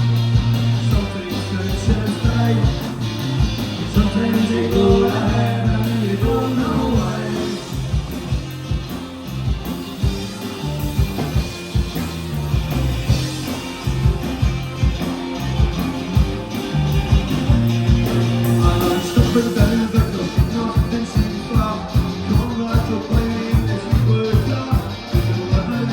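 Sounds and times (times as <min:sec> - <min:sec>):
live rock band playing: 0:00.0 - 0:25.9
person singing: 0:00.8 - 0:03.0, 0:03.8 - 0:08.0, 0:18.4 - 0:25.9.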